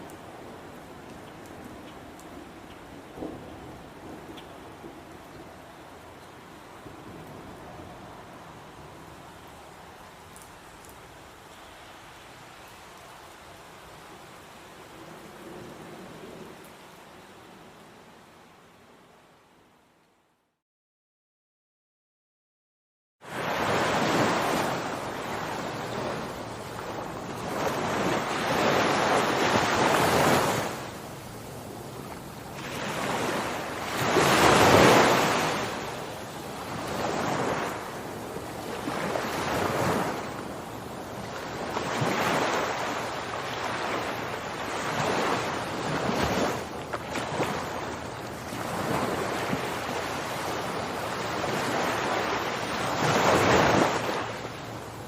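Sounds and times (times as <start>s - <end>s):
ocean waves washing: 23.2s - 55.0s.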